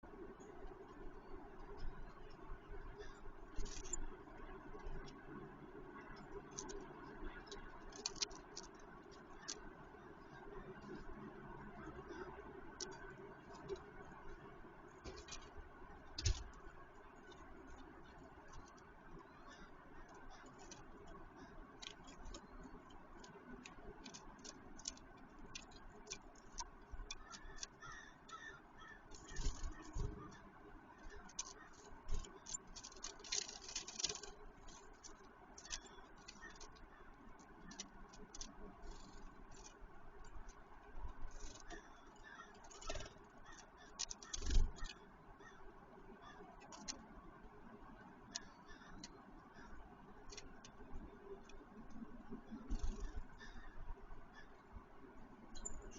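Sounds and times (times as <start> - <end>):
faint steady hum: 0.0 - 55.9
birds pecking at feeder: 0.4 - 45.6, 48.2 - 54.6.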